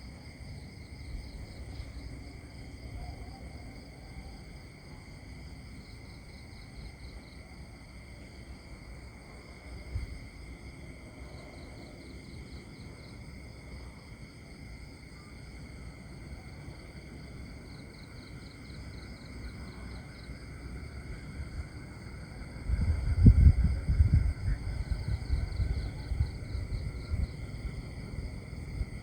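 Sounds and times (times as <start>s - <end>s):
insects trilling: 0.1s - 29.0s.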